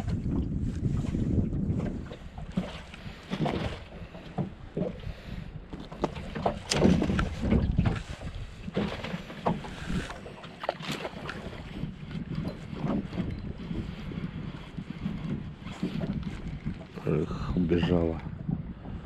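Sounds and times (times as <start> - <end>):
knocks and rattles in boat: 0.0 - 19.0
wind rumbling on microphone: 0.0 - 19.0
water splashing: 5.9 - 11.9.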